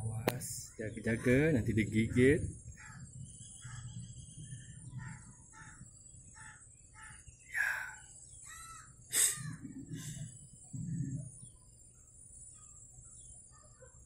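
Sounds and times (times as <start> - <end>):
birds calling: 0.0 - 14.0
low rumbling bumps: 9.5 - 11.6.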